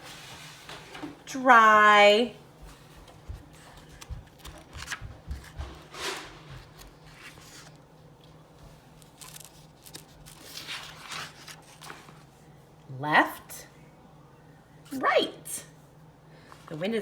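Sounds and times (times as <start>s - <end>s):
book handling thumps: 3.0s - 5.9s
paper rustling: 3.5s - 7.9s, 8.8s - 12.4s
page turning swish: 9.2s - 12.3s.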